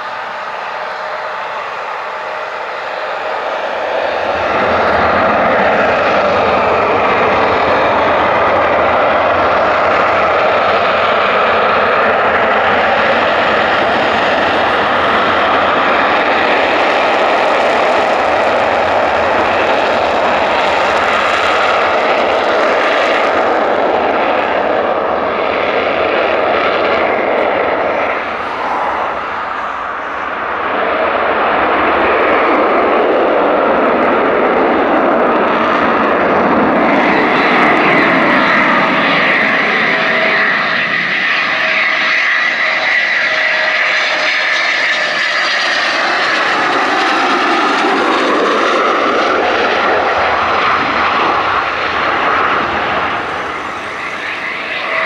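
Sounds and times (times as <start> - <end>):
high whine: 0.0 - 23.1, 36.0 - 44.2, 45.1 - 55.0
jet engines running: 0.0 - 55.0.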